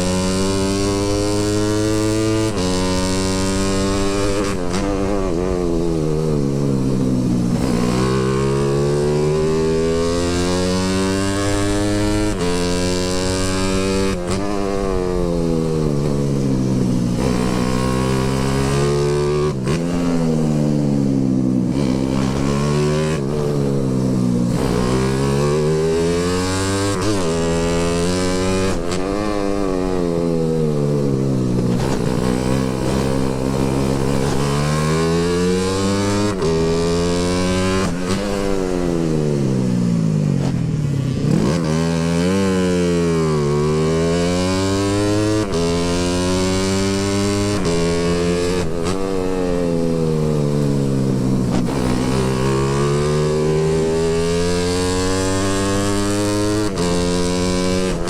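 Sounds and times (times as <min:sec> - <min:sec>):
steady rushing noise: 0:00.0 - 0:42.1
motorcycle engine revving: 0:00.0 - 0:58.0.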